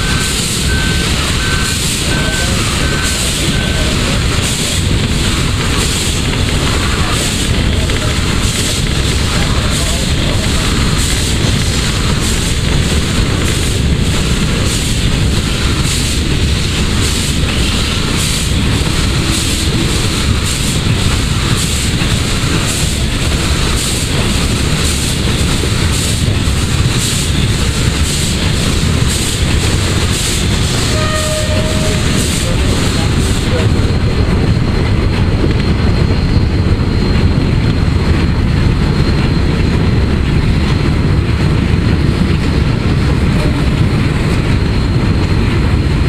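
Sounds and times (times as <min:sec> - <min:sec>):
locomotive whistle tone: 0:00.0 - 0:04.4, 0:30.7 - 0:34.7
rumble of wheels on track: 0:00.0 - 0:46.0
steam locomotive exhaust beats: 0:00.0 - 0:46.0.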